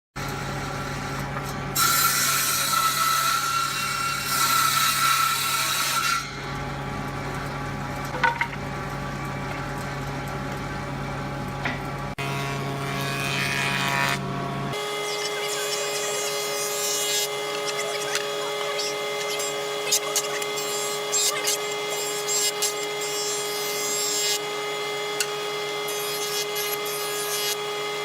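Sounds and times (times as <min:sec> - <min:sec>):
power tool cutting wood: 0:00.3 - 0:06.6, 0:12.1 - 0:28.0.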